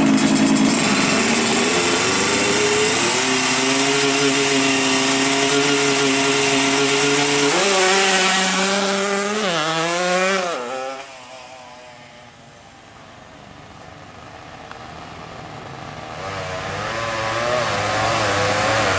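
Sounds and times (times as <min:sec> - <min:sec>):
two-stroke motorcycle engine buzzing: 0:00.0 - 0:12.5, 0:14.2 - 0:18.9.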